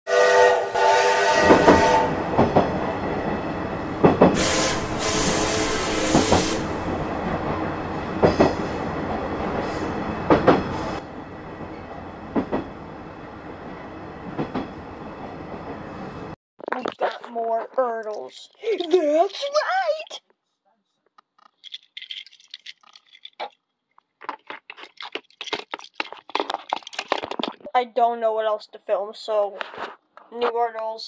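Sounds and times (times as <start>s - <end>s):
train rumble: 1.3s - 16.4s
sharp knocks of train wheels: 1.4s - 2.8s, 4.0s - 4.4s, 8.2s - 8.7s, 10.2s - 10.8s, 12.3s - 12.7s.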